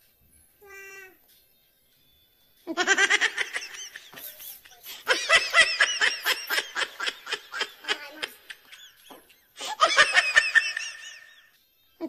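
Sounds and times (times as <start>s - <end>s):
person laughing hard: 2.7s - 11.3s.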